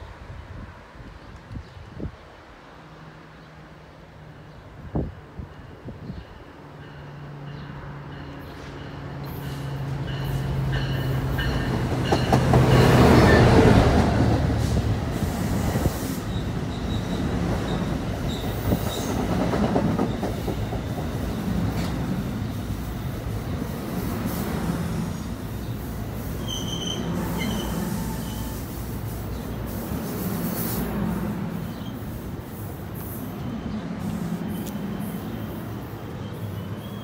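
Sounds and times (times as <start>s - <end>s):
train coaches rumbling: 2.4s - 37.0s
high wheel squeals: 25.6s - 28.9s, 33.0s - 37.0s.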